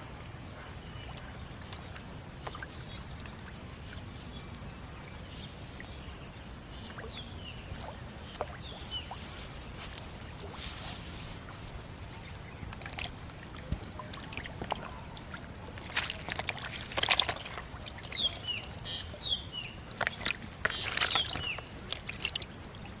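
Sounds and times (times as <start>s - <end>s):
shallow water splashing: 6.7s - 23.0s.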